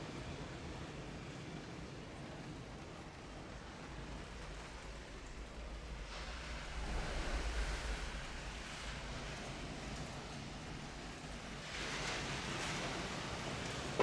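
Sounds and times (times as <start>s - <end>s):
pink noise hiss: 0.0s - 14.0s
low rumble: 3.4s - 11.8s.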